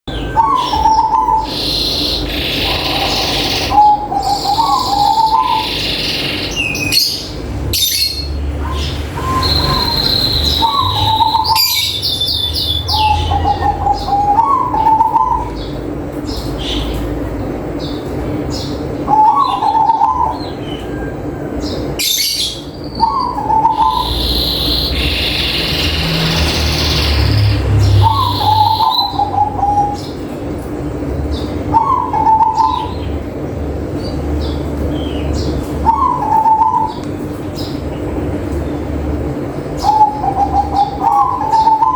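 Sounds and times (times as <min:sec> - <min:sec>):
small birds chirping: 0:00.0 - 0:41.9
dove cooing: 0:00.3 - 0:05.8, 0:08.6 - 0:12.0, 0:12.9 - 0:15.7, 0:19.0 - 0:21.0, 0:23.0 - 0:27.2, 0:27.9 - 0:30.1, 0:31.7 - 0:33.1, 0:35.8 - 0:37.0, 0:39.8 - 0:41.9.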